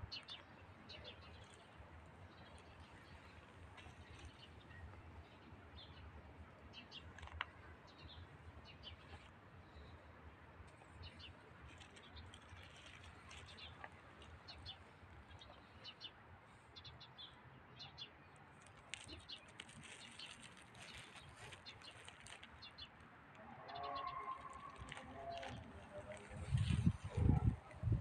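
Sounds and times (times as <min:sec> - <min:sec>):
soft crackling rustles: 0:00.0 - 0:16.6, 0:18.4 - 0:28.0
small birds chirping: 0:00.0 - 0:23.1.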